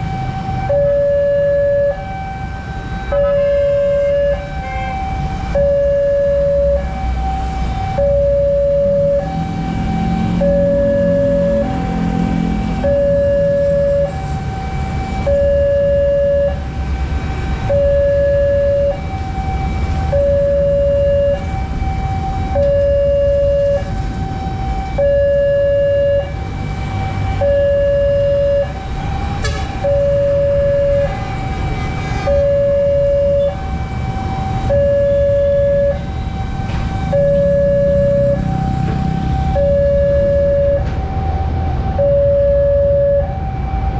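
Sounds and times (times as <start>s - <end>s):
low rumble of traffic: 0.0s - 43.9s
railroad crossing warning bell: 42.0s - 43.4s.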